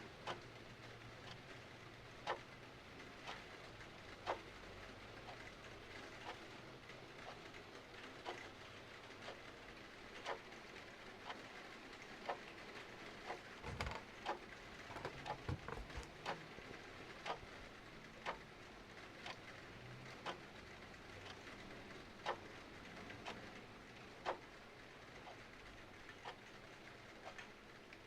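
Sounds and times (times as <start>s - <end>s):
clock ticking: 0.2s - 0.4s, 2.2s - 4.5s, 10.2s - 10.5s, 13.2s - 17.5s, 18.2s - 18.5s, 19.2s - 19.6s, 20.2s - 23.6s, 24.2s - 24.5s.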